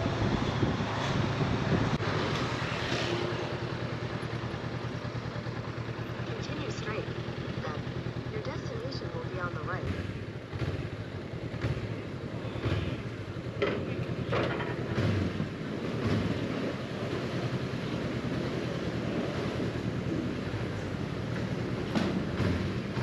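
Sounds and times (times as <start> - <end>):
wind noise on microphone: 0.0 - 2.6
motorcycle engine running: 0.0 - 23.0.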